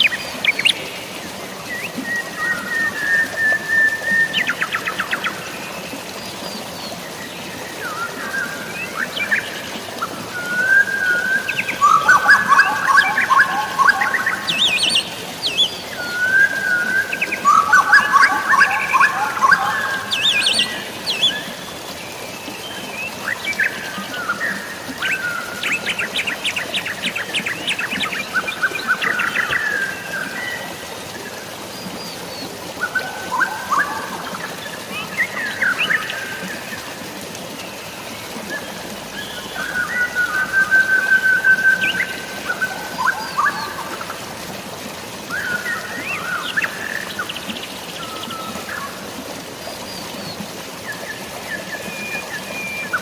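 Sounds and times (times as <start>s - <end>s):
running water: 0.0s - 53.0s
birds chirping and trilling: 7.8s - 21.8s.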